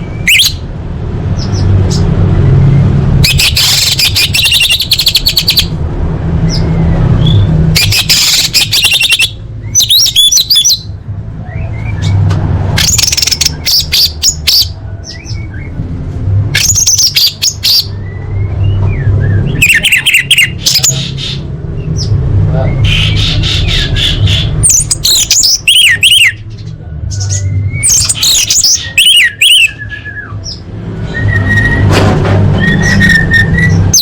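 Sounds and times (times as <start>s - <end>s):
bird chattering calls: 3.2s - 5.7s, 7.8s - 10.9s, 12.8s - 14.8s, 19.5s - 22.1s, 22.7s - 26.5s, 27.3s - 29.8s.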